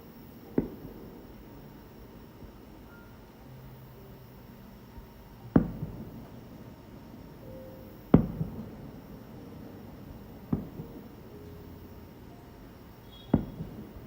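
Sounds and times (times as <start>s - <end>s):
firework shells bursting: 4.5s - 14.0s.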